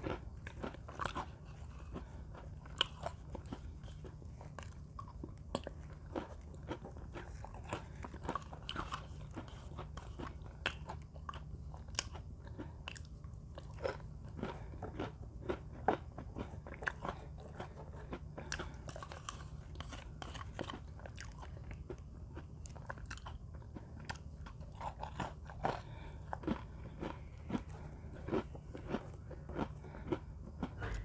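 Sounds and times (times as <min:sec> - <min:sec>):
cookies crunching and chewing: 0:00.0 - 0:31.0.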